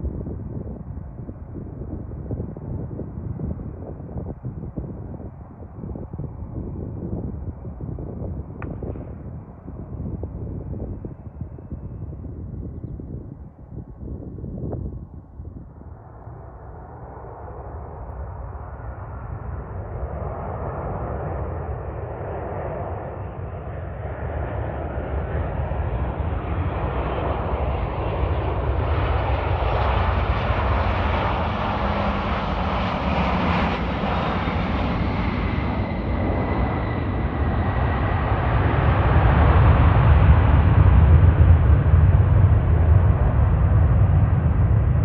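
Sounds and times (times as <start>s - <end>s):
jet airliner engines roaring: 15.5s - 45.0s.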